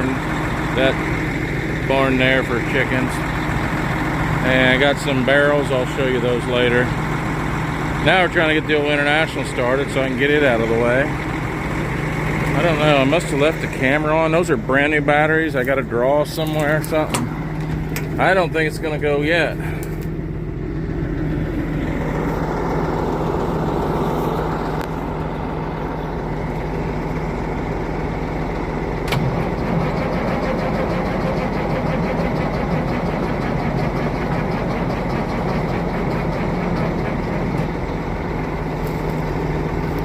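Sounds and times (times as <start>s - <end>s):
low engine hum: 0.0s - 40.0s
engine cranking on starter: 21.9s - 40.0s.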